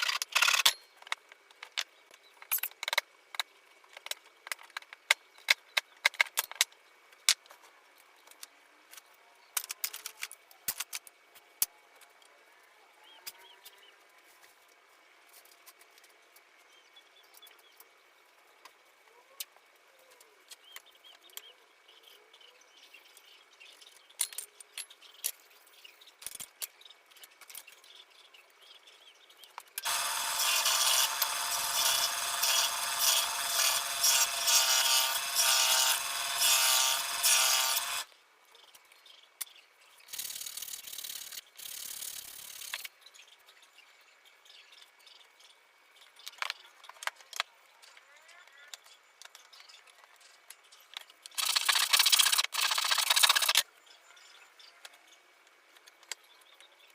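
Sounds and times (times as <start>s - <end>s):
tool scraping wood: 29.8s - 38.1s, 51.4s - 53.6s.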